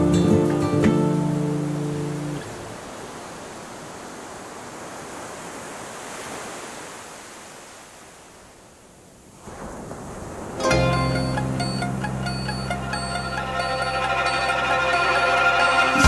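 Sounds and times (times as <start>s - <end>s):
ocean waves washing: 0.0s - 16.0s.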